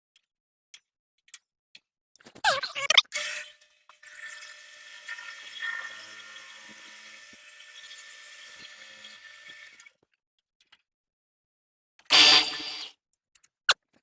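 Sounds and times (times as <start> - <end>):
small power tool whirring: 4.4 - 9.8.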